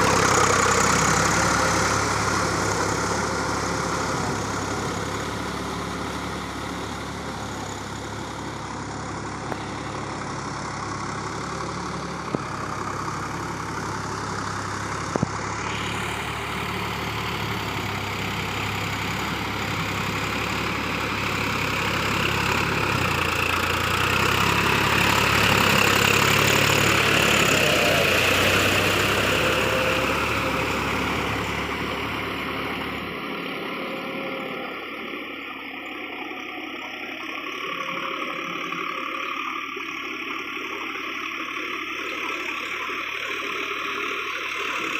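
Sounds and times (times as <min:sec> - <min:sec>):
tractor diesel engine idling: 0:00.0 - 0:44.9.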